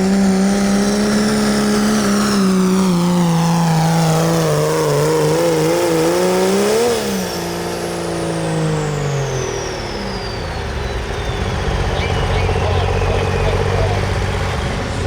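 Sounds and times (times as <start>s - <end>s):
diesel truck engine under load: 0.0s - 15.0s
turbo whistle: 9.5s - 15.0s.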